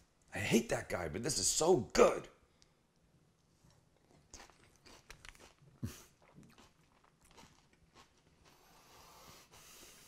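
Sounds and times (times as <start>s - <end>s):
faint chewing of chips: 3.4s - 9.7s.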